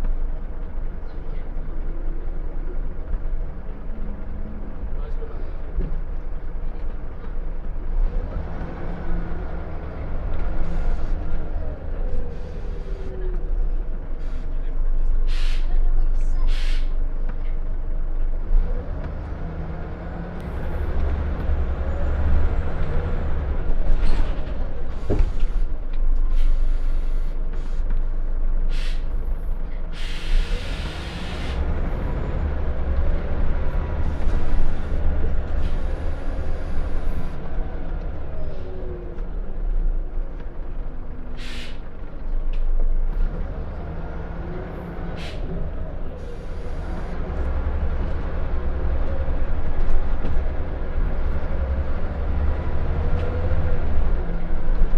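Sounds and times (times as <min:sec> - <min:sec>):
bus diesel engine rumbling: 0:00.0 - 0:54.9
air brake hissing: 0:15.3 - 0:15.8, 0:16.5 - 0:17.0, 0:26.3 - 0:28.0, 0:28.7 - 0:29.2, 0:29.9 - 0:31.7, 0:34.1 - 0:37.4, 0:41.4 - 0:41.9, 0:45.0 - 0:45.6.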